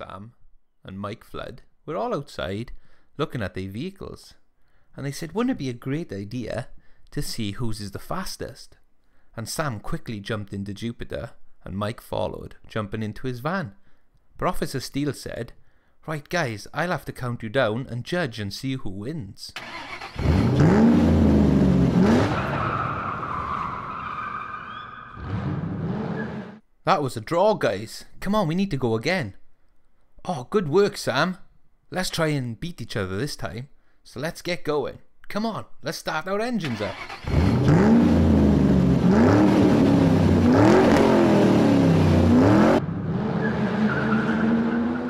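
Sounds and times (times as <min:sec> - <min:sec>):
engine revving: 0:19.6 - 0:22.8, 0:25.2 - 0:26.6, 0:36.7 - 0:45.0
tyre squeal: 0:22.2 - 0:26.6.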